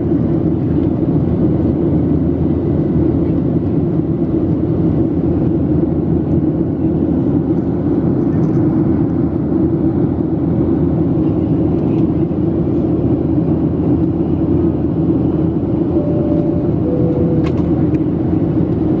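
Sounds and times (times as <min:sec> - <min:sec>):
jet engine drone: 0:12.4 - 0:19.0
faint short tones: 0:15.9 - 0:17.9.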